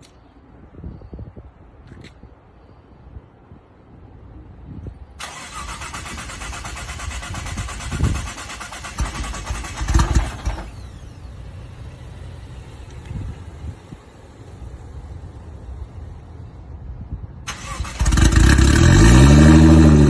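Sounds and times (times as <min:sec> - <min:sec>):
car engine idling: 0:05.2 - 0:18.4
car engine revving: 0:17.5 - 0:20.0.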